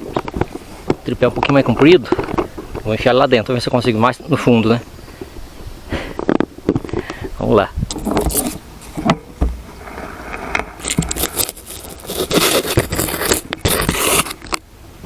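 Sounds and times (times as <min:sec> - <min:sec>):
tripod scraping against hole: 0:07.9 - 0:14.6.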